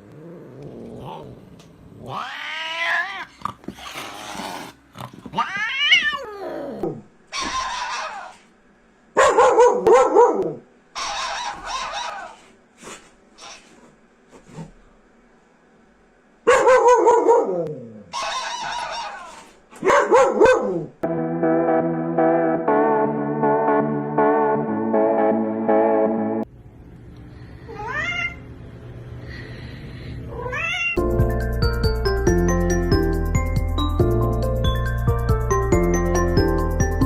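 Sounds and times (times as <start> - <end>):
cat yowling: 2.0 - 3.4, 5.3 - 8.4, 27.7 - 28.4, 30.3 - 31.0
dog barking: 9.2 - 12.4, 16.5 - 20.9.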